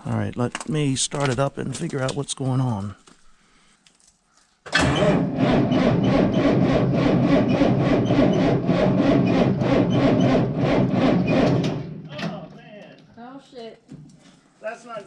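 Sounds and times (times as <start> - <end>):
engine cranking without starting: 4.7 - 12.0.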